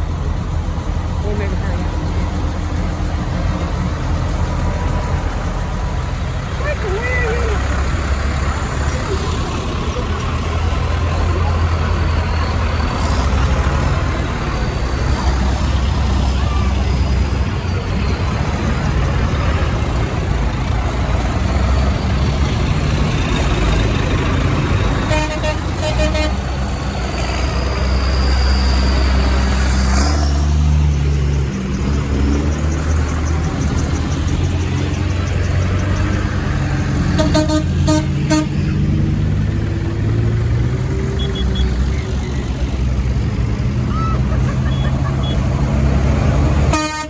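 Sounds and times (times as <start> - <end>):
tractor engines passing: 0.0 - 47.0
horn toots: 25.0 - 26.6, 37.0 - 38.6, 46.6 - 47.0.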